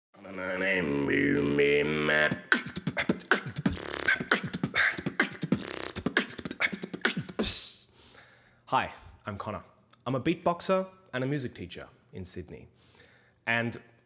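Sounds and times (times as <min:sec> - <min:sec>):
held pitched vocal tone: 0:00.2 - 0:07.8
beatboxing drum hits: 0:02.1 - 0:07.8.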